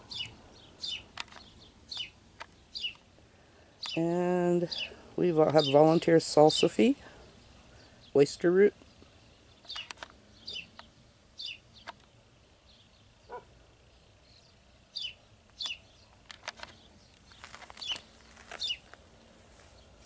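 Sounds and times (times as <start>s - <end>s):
birds chirping: 0.0s - 20.0s
lower bird call: 16.9s - 18.9s.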